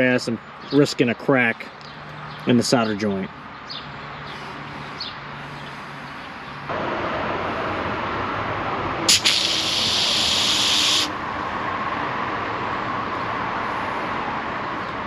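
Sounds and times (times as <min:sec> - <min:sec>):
loud hissing spray: 0:09.1 - 0:11.1.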